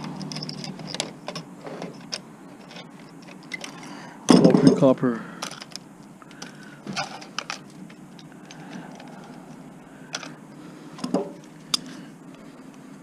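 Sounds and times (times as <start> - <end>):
small plastic and metal parts clicking: 0.0 - 4.8, 5.4 - 10.4.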